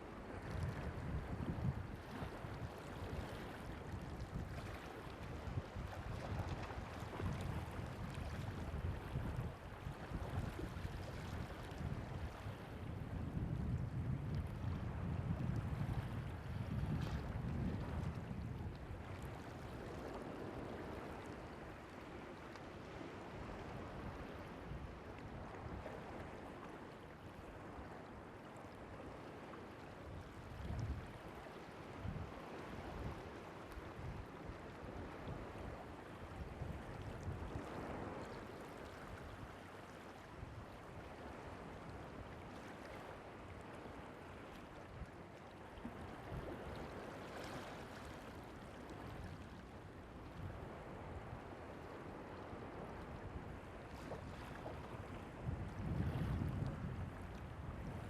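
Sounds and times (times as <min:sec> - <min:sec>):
sea waves washing on beach: 0:00.0 - 0:58.0
wind buffeting microphone: 0:00.3 - 0:22.0, 0:30.1 - 0:38.4, 0:49.0 - 0:58.0.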